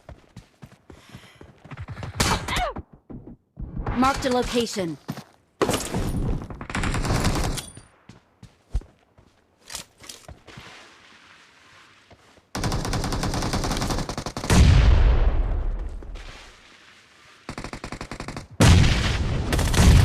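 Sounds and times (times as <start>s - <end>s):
video game automatic gunfire: 12.6s - 14.6s.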